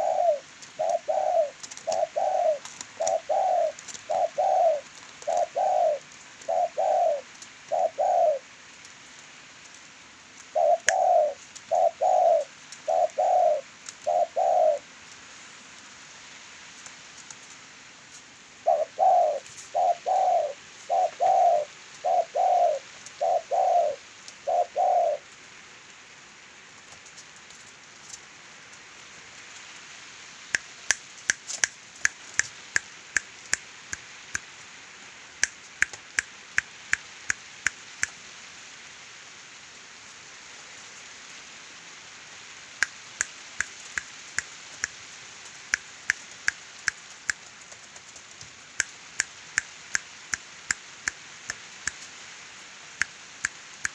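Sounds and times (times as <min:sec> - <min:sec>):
dove cooing: 0:00.0 - 0:08.5, 0:10.5 - 0:14.9, 0:18.6 - 0:25.3
sharp clicks: 0:35.4 - 0:38.2.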